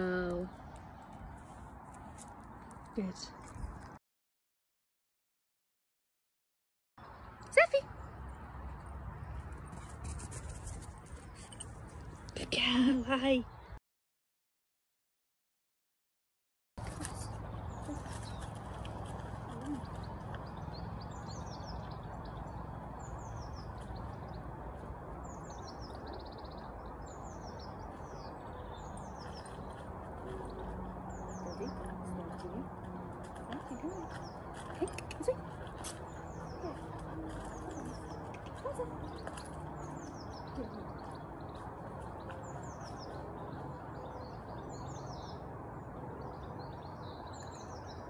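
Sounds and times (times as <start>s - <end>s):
small songbirds chirping: 16.9s - 48.0s.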